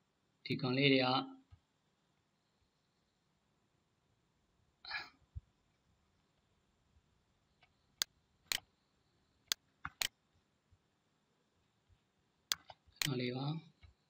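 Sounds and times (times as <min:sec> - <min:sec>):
faint background hiss: 0:00.0 - 0:14.0
computer mouse clicking: 0:09.5 - 0:10.2, 0:12.5 - 0:13.2.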